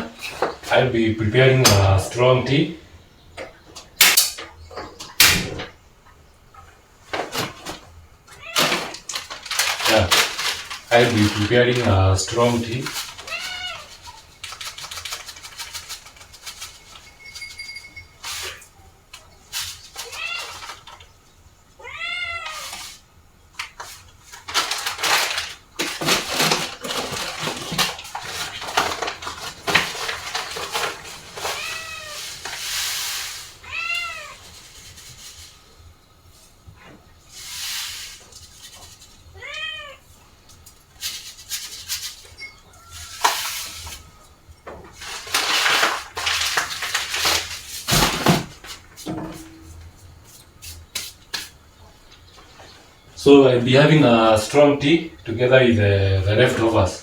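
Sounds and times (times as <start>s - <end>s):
clattering and rustling handling noise: 0.0s - 21.5s, 22.4s - 57.0s
cat meowing: 8.3s - 9.0s, 13.2s - 14.2s, 20.0s - 20.7s, 21.8s - 22.8s, 31.4s - 32.4s, 33.6s - 34.5s, 39.3s - 40.1s, 42.6s - 44.4s.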